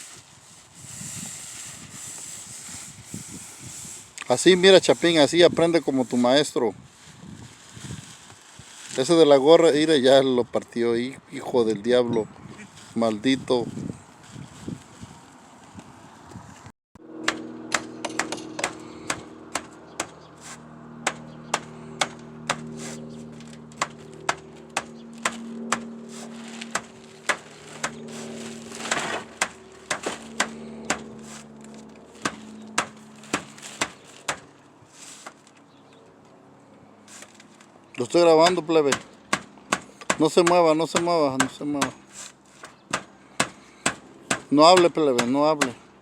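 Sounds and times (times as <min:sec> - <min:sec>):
steady low hum: 0:17.0 - 0:46.0.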